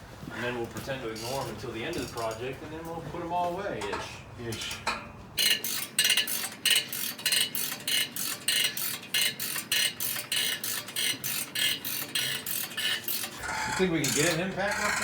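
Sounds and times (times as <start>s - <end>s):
ratchet wrench clicking: 5.4s - 15.0s.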